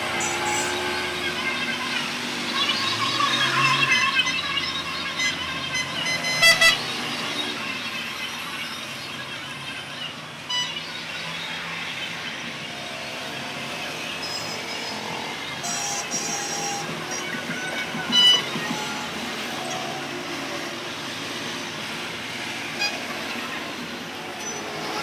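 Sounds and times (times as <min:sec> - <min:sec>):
road traffic: 0:00.0 - 0:25.0
horn toot: 0:05.2 - 0:07.1.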